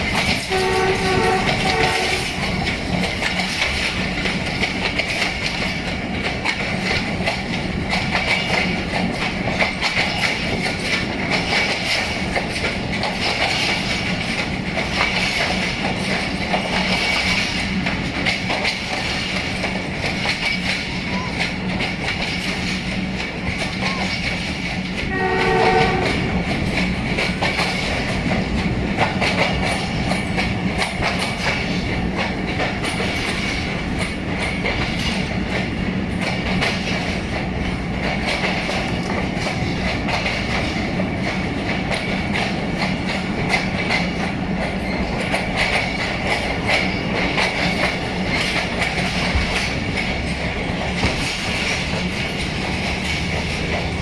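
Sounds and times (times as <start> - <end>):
train wheels clattering on rails: 0.0 - 54.0
locomotive horn chord: 0.4 - 2.6, 25.1 - 26.5.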